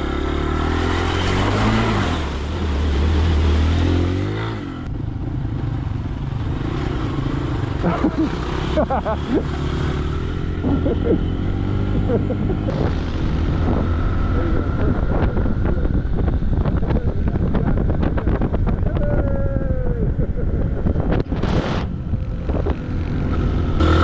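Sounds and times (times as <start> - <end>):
motorcycle engine running: 0.0 - 24.0
wind on microphone: 10.6 - 24.0.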